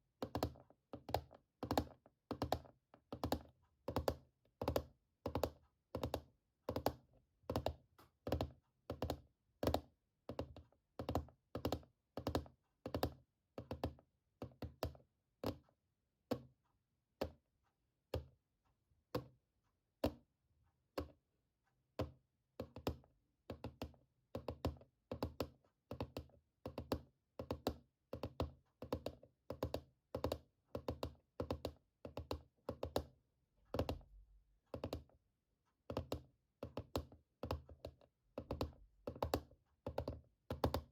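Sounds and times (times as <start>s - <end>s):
tapping on hard object: 35.9s - 40.9s.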